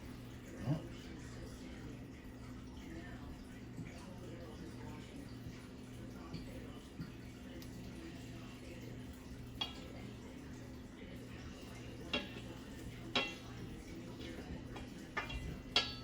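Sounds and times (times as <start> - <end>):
low electrical hum: 0.0 - 16.0
utensil clinking against dish: 6.1 - 16.0.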